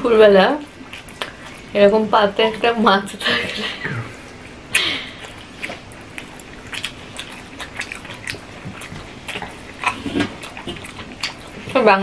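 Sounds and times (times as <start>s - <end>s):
person chewing: 0.6s - 1.8s, 4.2s - 11.8s.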